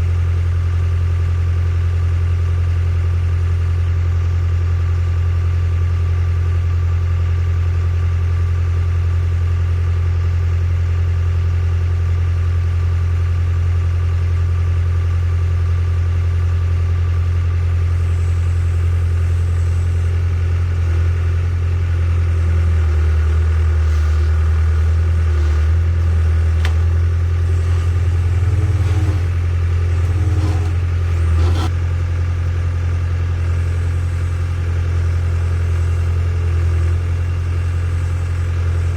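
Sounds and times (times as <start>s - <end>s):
excavator diesel engine running: 16.2s - 38.9s.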